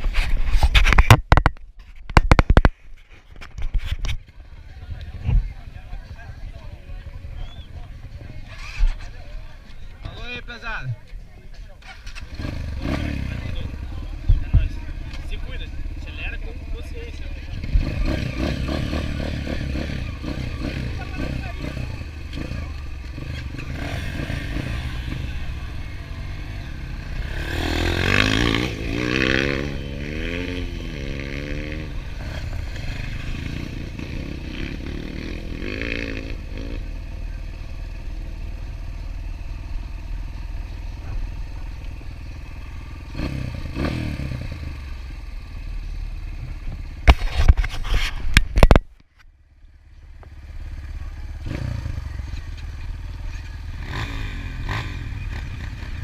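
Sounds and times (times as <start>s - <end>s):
dirt bike engine revving: 11.8s - 13.9s, 17.5s - 45.8s, 50.5s - 56.0s.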